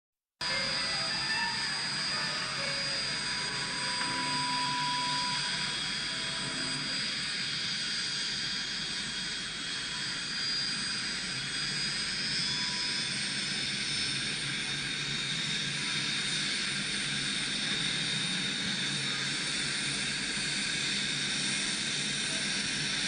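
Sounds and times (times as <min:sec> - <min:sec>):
high whining tones: 0:00.4 - 0:09.0
jet engine running: 0:00.4 - 0:23.0.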